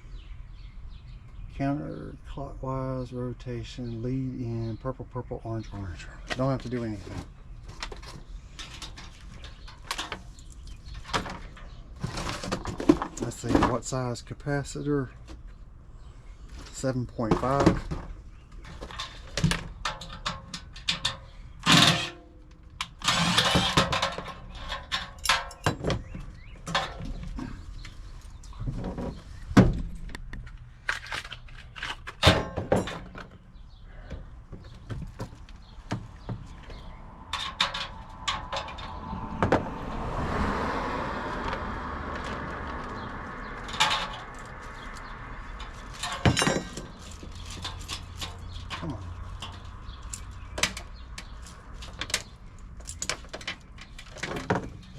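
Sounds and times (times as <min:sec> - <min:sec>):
parts and tools clicking and rattling: 0:06.3 - 0:13.9, 0:16.6 - 0:29.3, 0:29.9 - 0:39.6, 0:41.4 - 0:54.9.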